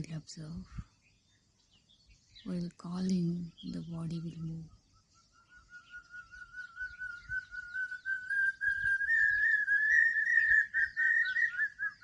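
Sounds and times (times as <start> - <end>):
small birds chirping: 0.0 - 12.0
bird whistled call: 4.7 - 12.0.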